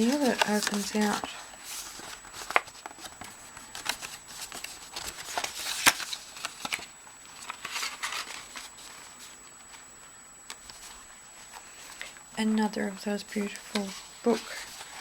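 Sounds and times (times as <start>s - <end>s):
paper rustling and crinkling: 0.0s - 9.8s, 10.5s - 12.2s, 13.3s - 15.0s.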